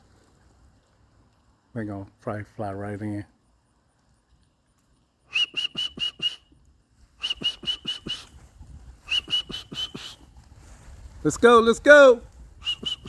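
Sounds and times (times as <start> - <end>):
sharp whistle blasts: 5.3 - 6.5, 7.2 - 8.3, 9.0 - 10.2, 12.6 - 13.0.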